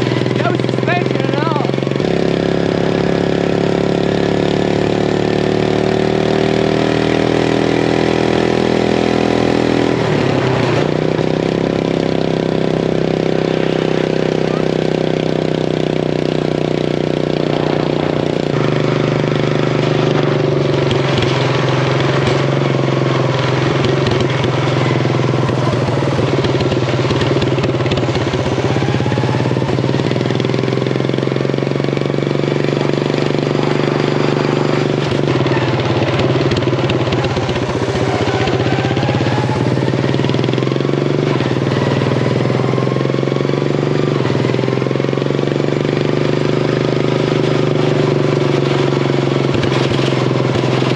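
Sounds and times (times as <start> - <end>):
riding mower engine running: 0.0 - 50.9.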